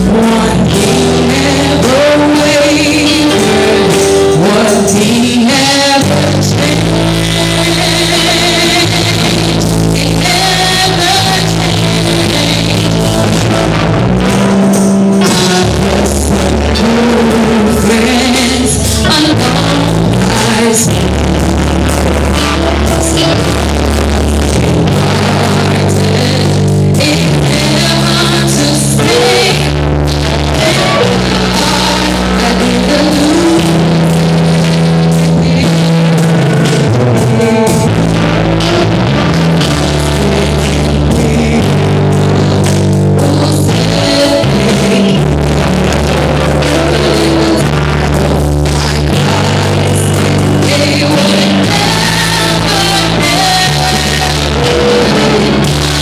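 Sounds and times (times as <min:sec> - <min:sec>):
drums: 0:00.0 - 0:56.0
guitar: 0:00.0 - 0:56.0
live band playing gospel music: 0:00.0 - 0:56.0.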